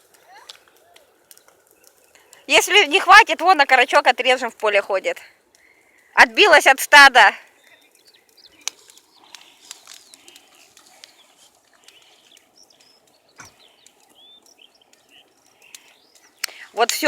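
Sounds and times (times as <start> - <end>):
small birds chirping: 0.0 - 4.8, 5.4 - 17.0
sharp clicks: 7.9 - 11.2, 11.8 - 17.0.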